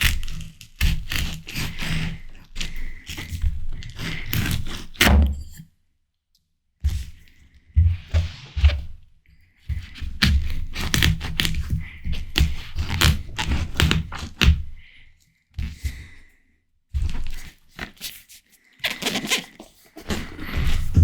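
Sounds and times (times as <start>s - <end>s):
wet chewing: 0.0s - 5.1s
crunching watermelon bites: 0.0s - 5.4s, 9.9s - 14.6s, 17.0s - 21.0s.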